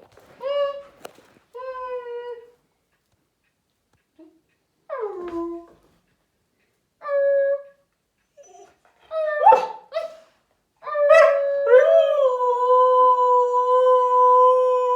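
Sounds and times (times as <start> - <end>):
husky howling and yelping: 8.4 - 14.9.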